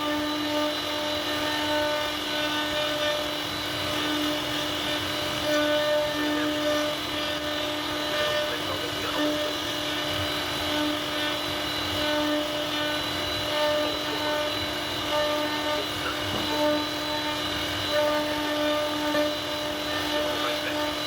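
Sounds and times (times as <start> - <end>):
bit cutting wood hiss: 0.0 - 21.0
router spindle whine: 0.0 - 21.0.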